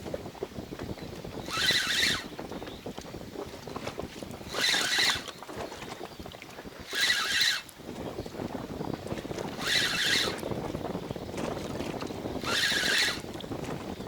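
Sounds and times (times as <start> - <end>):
water lapping against boat: 0.0 - 14.0
wind: 0.0 - 14.0
spinning reel cranking: 1.4 - 2.4, 4.4 - 5.3, 6.8 - 7.8, 9.4 - 10.6, 12.4 - 13.4.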